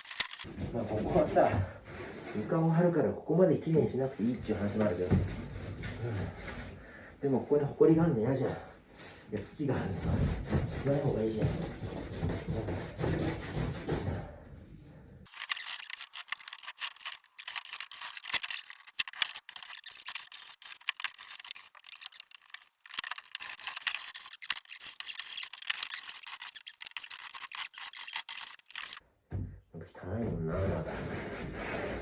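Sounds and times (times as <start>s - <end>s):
scrubbing wooden floorboards: 15.3s - 29.0s, 30.5s - 32.0s.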